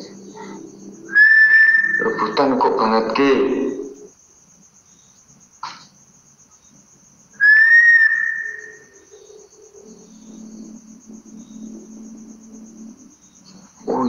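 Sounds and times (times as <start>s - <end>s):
crickets chirping: 0.0s - 14.0s
high whistled note: 1.1s - 2.4s.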